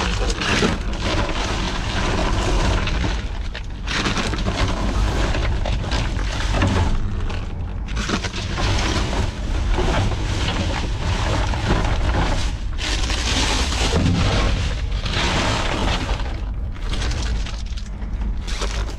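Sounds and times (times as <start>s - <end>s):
low rumble: 0.0s - 18.9s
rustling and crunching trash bags: 0.0s - 18.9s.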